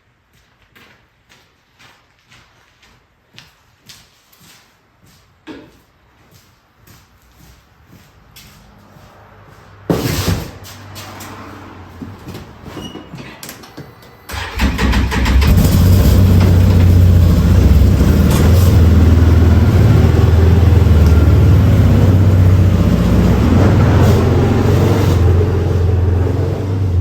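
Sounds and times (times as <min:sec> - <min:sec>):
atv engine starting and running: 0:13.6 - 0:27.0.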